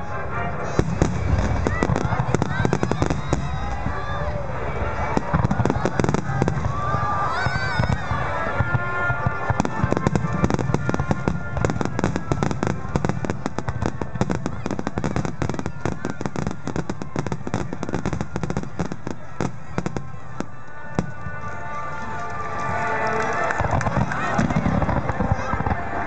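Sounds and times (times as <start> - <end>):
faint music: 0.0 - 26.0
fireworks crackling and popping: 0.2 - 26.0
fireworks booming: 0.6 - 4.2, 4.9 - 21.4.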